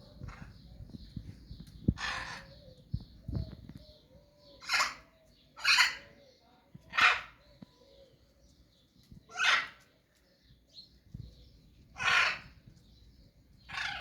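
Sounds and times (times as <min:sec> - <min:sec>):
animal harsh calls: 0:04.6 - 0:06.1, 0:06.9 - 0:07.4, 0:09.3 - 0:09.8, 0:12.0 - 0:12.6, 0:13.7 - 0:14.0.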